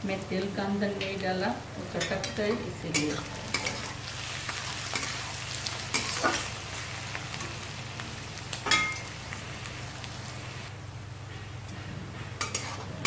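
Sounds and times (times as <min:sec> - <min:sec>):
onions sizzling in hot oil: 0:01.4 - 0:10.7
spatula scraping and clinking pan: 0:12.4 - 0:12.9.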